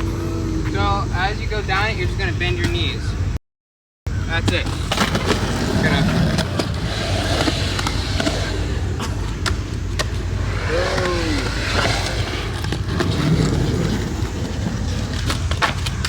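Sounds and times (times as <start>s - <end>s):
skateboard wheels rolling on concrete: 0.0s - 3.4s, 4.1s - 16.0s
skateboard clacks: 4.4s - 16.0s.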